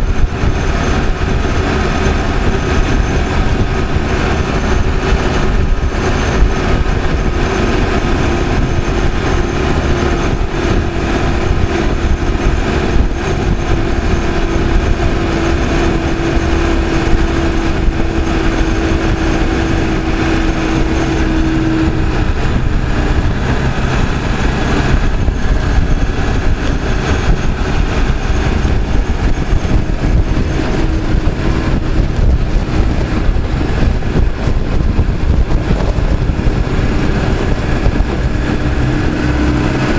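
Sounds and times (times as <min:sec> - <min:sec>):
diesel engine running: 0:00.0 - 0:39.9
engine whine: 0:00.0 - 0:39.9.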